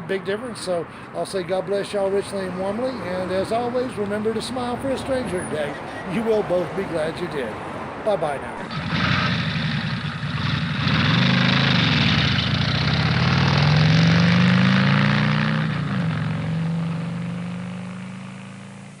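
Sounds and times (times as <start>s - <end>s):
truck engine accelerating: 8.6s - 19.0s.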